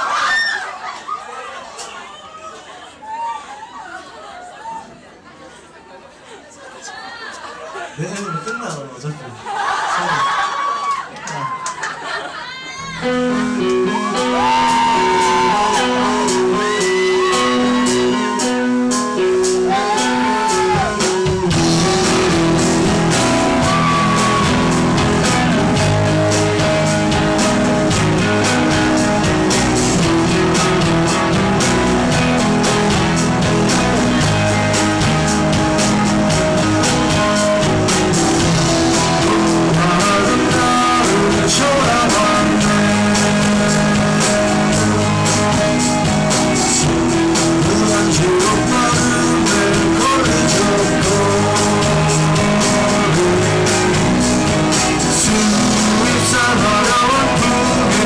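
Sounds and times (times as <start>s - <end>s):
live rock band playing: 12.8s - 58.0s.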